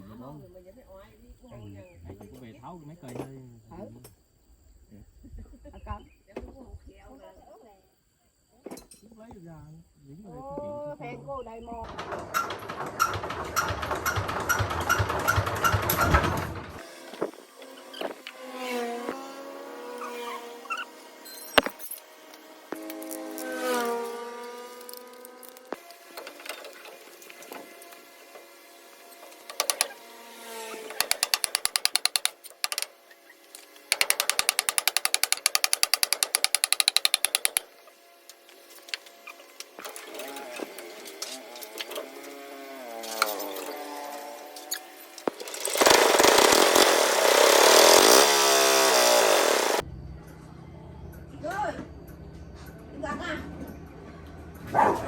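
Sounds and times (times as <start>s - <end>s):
small diesel engine knocking: 11.9s - 16.8s, 31.0s - 32.9s, 33.9s - 37.7s, 45.3s - 49.8s
ratchet wrench clicking: 29.5s - 29.9s, 31.0s - 37.7s.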